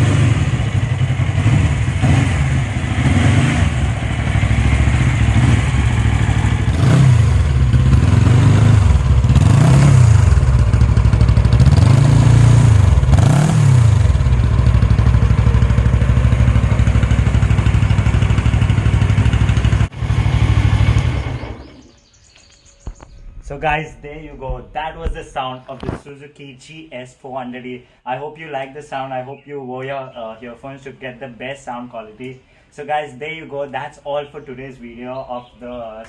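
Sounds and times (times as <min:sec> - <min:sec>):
motorcycle engine revving and idling: 0:00.0 - 0:22.0.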